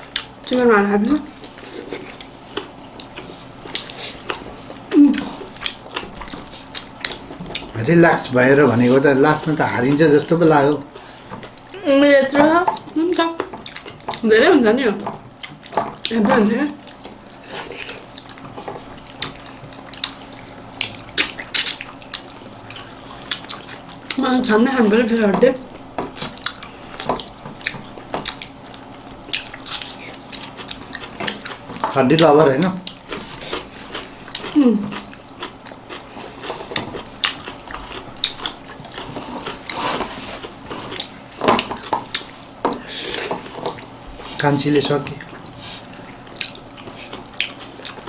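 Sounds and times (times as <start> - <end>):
mouth smacks and chewing: 1.3 - 7.8, 16.8 - 24.2, 25.6 - 43.9, 45.2 - 48.0.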